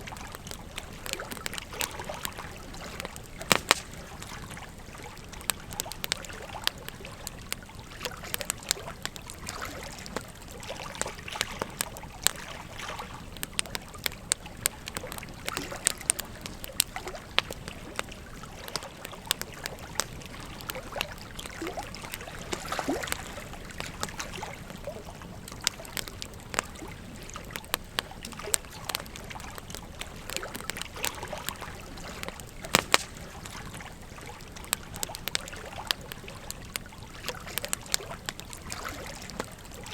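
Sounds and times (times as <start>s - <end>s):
wood fire crackling: 0.0s - 39.9s
river water flowing: 1.0s - 5.0s.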